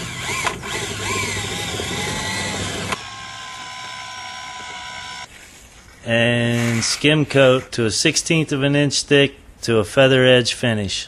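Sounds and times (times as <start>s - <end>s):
electric drill mixer whining: 0.0s - 5.3s.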